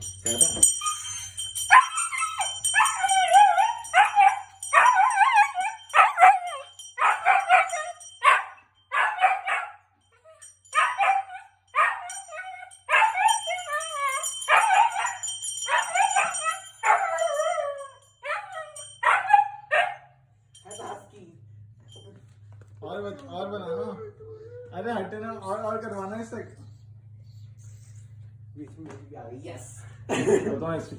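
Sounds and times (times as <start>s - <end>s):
bell ringing: 0.0s - 20.0s, 20.6s - 21.2s
dog howling: 0.8s - 9.8s, 10.4s - 20.0s.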